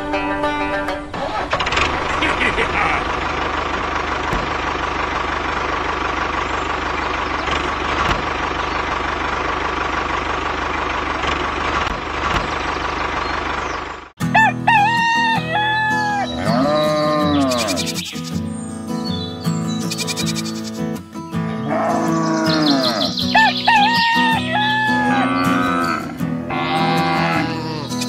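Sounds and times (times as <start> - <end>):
engine running: 0.0 - 28.0
rooster crowing: 14.2 - 16.8, 23.4 - 25.8.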